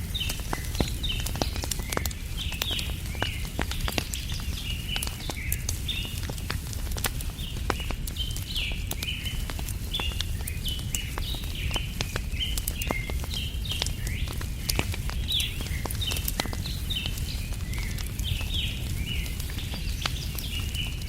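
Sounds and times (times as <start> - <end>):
campfire crackling and popping: 0.0 - 21.0
small birds chirping: 0.0 - 21.0.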